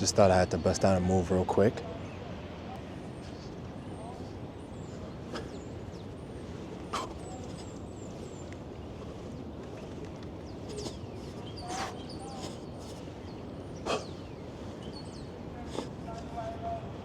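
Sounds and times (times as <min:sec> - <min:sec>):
city background noise: 0:00.0 - 0:17.0.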